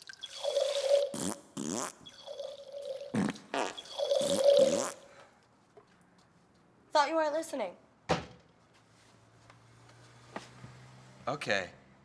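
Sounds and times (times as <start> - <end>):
fart-like blats: 0.3 - 5.1.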